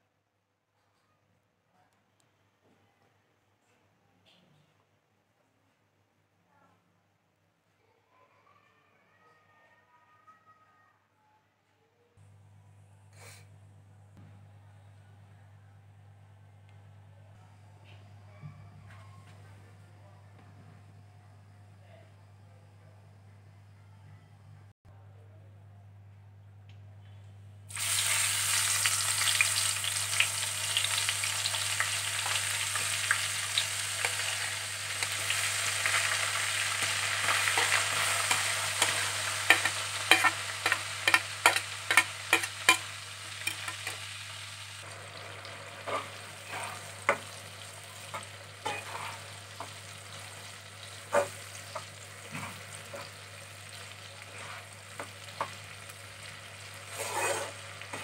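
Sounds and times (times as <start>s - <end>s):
vegetables sizzling in oil: 27.7s - 58.0s
spatula clicking and scraping pan: 37.2s - 44.0s, 48.1s - 49.8s, 56.9s - 58.0s.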